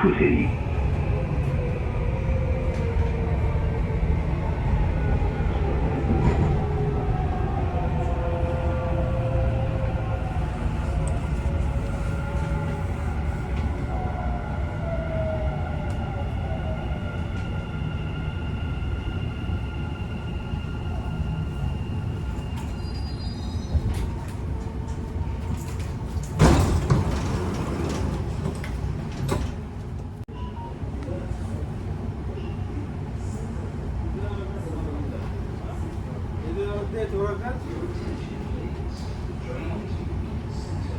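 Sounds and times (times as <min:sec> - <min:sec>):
train running rumble: 0:00.0 - 0:30.2
sliding doors opening: 0:23.8 - 0:30.1.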